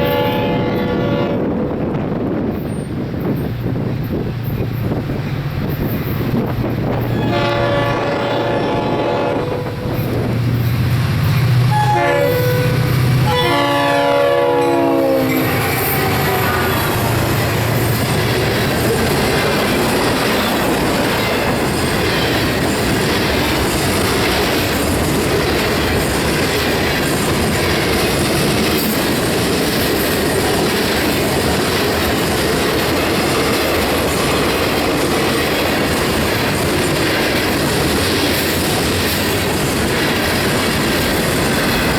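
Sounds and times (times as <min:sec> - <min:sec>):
locomotive air horn blasts: 0:00.0 - 0:01.6, 0:07.1 - 0:10.1, 0:11.7 - 0:17.0
train cars rumbling past: 0:00.0 - 0:41.9
wheels clacking on rails: 0:00.0 - 0:41.9.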